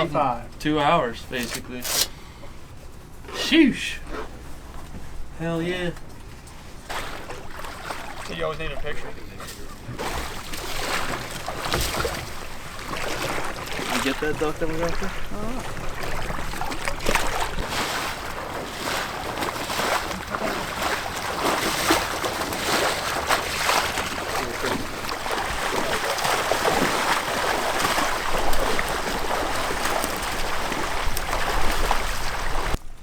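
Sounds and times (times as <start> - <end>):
water splashing from wading: 6.7 - 9.2, 9.8 - 32.8.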